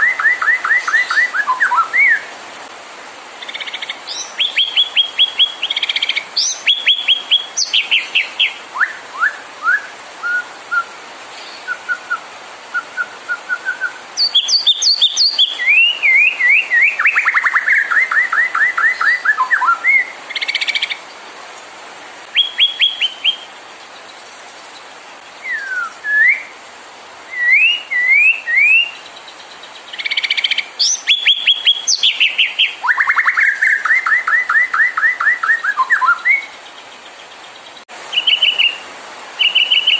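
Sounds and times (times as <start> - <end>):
songbird singing varied phrases: 0.0 - 2.7, 3.3 - 21.2, 22.2 - 26.6, 27.3 - 39.9.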